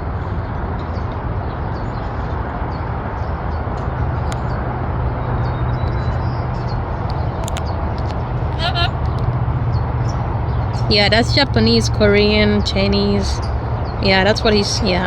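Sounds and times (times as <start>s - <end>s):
low background rumble: 0.0s - 15.0s
parrot chirping and clicking: 7.0s - 8.2s.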